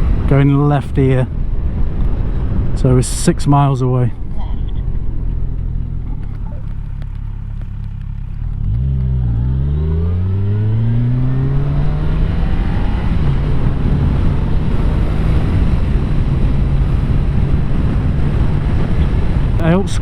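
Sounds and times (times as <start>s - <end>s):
motorcycle engine accelerating: 4.2s - 20.0s.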